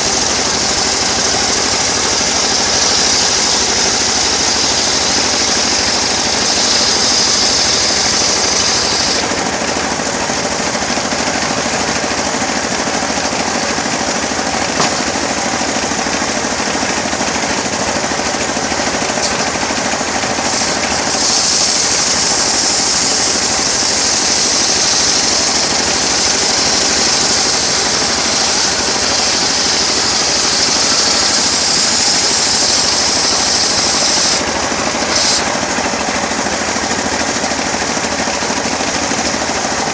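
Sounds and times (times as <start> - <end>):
saw sawing wood: 0.0 - 39.9
sawmill engine rattling: 0.0 - 39.9
high hiss: 0.6 - 9.3.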